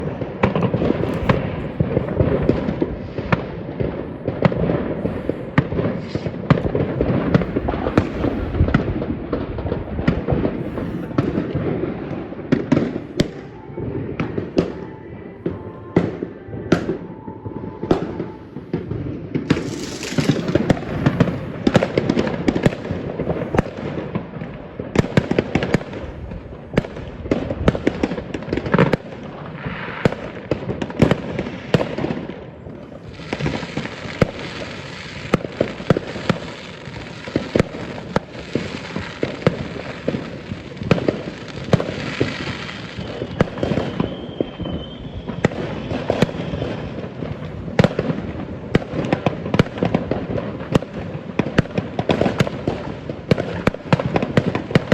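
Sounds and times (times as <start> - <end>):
fireworks hissing: 0.0 - 14.0, 18.2 - 24.1
firework whistle: 0.0 - 24.2, 26.8 - 48.2
firecrackers crackling: 0.0 - 54.9
fireworks bangs: 0.0 - 54.9.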